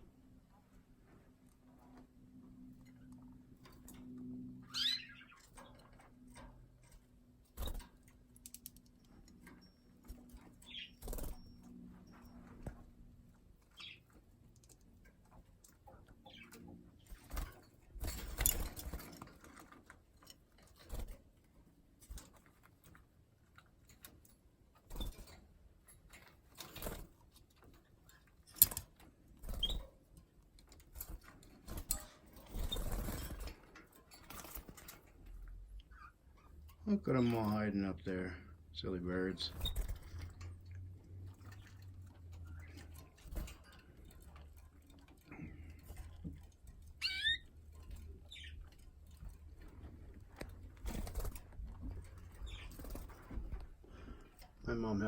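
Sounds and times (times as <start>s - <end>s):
wing flutters: 3.0s - 12.8s, 30.8s - 35.3s, 39.2s - 54.2s
canaries chirping: 4.6s - 6.5s, 9.2s - 12.8s, 13.6s - 14.2s, 41.2s - 53.6s.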